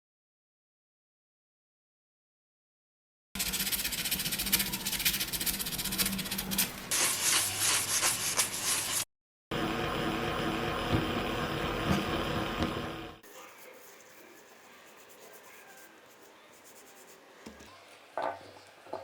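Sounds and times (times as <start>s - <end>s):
scrubbing on metal: 3.4s - 9.0s.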